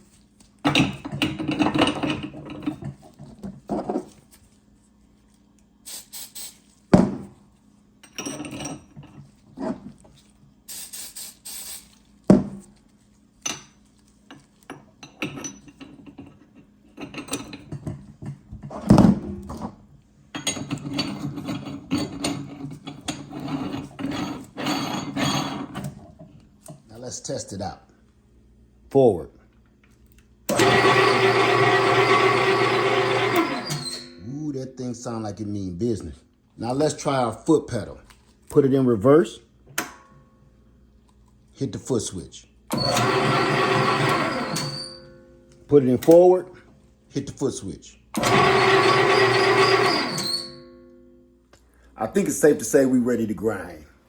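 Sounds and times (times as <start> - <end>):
metal scraping and rubbing: 20.4 - 26.0.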